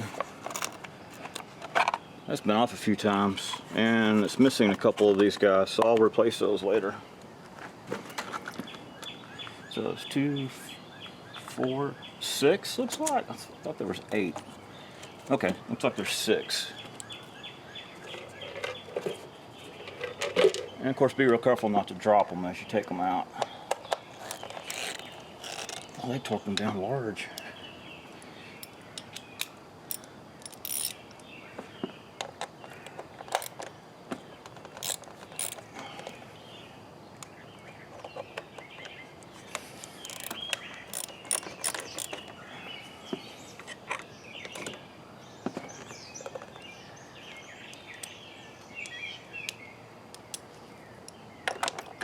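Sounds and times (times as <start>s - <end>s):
ratcheting wrench clicking: 24.2s - 26.0s, 29.9s - 31.0s, 34.8s - 35.6s, 40.0s - 42.2s.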